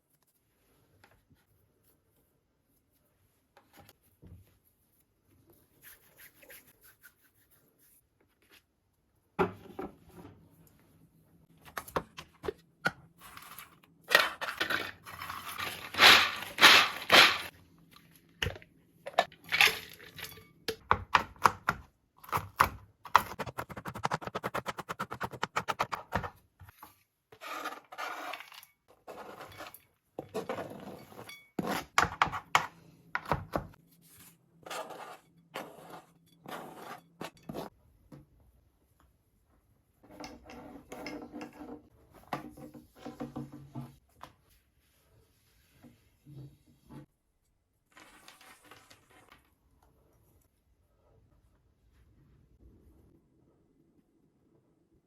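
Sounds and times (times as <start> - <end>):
hands and utensils rubbing and scraping: 0.0 - 8.8, 13.1 - 17.6.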